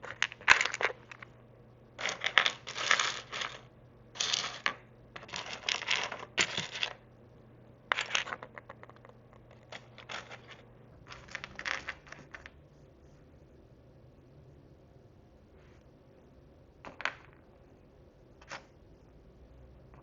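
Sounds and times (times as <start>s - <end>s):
plastic pieces rustling and clattering: 0.0s - 1.3s, 2.0s - 3.6s, 4.2s - 7.0s, 7.9s - 12.5s.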